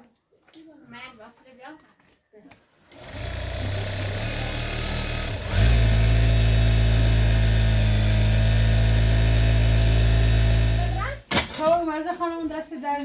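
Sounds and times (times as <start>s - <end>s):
sewing machine running: 2.9s - 11.3s.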